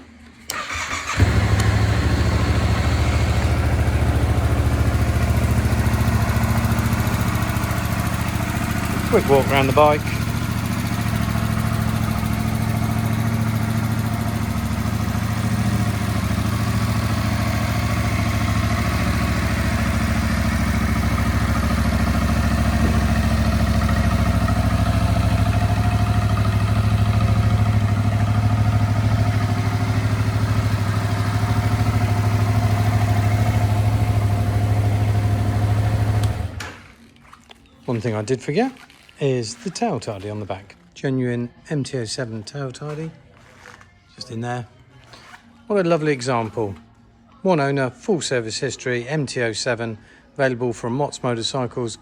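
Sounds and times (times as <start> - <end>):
motorcycle engine idling: 0.5 - 36.9.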